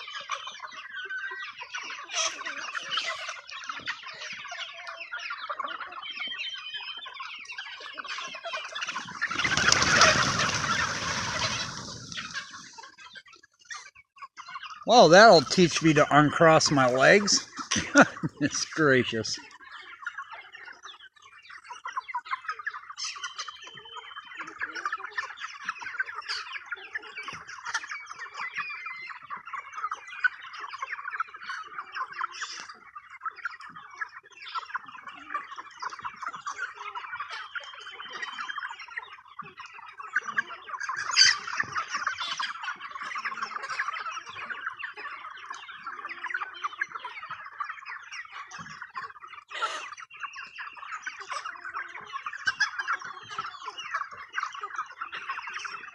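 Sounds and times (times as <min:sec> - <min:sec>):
chickens clucking: 0:00.0 - 0:55.9
chicken squawk: 0:01.4 - 0:03.5, 0:07.9 - 0:12.9, 0:40.2 - 0:47.4, 0:48.4 - 0:55.9.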